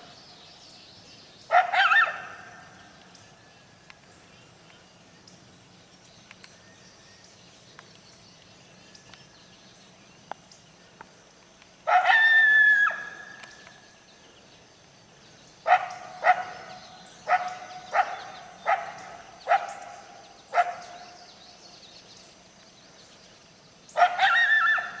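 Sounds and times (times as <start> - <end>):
coyote howling: 1.5 - 2.7, 11.9 - 13.5, 24.0 - 25.0
coyote barking: 1.5 - 2.8, 11.8 - 13.5, 15.6 - 21.2, 23.9 - 25.0.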